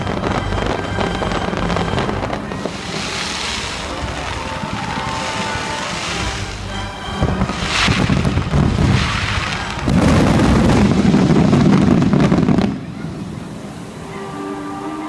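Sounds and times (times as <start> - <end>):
orchestral music: 0.0 - 12.6, 13.5 - 15.0
fireworks bangs and crackling: 0.0 - 13.8.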